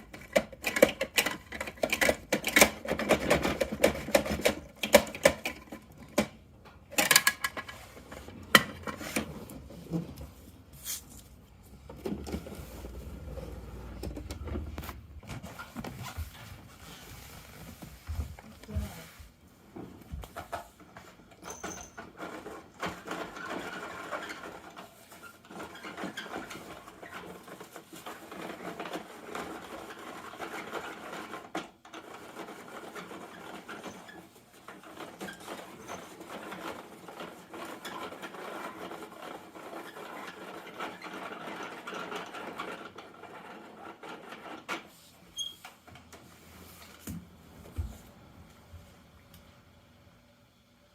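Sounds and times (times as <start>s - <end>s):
plastic toy parts clicking and rattling: 0.0s - 6.3s, 6.9s - 7.9s.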